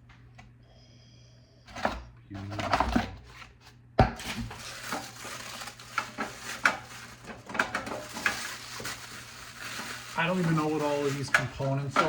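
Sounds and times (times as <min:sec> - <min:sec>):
packaging rustling: 0:04.2 - 0:12.0.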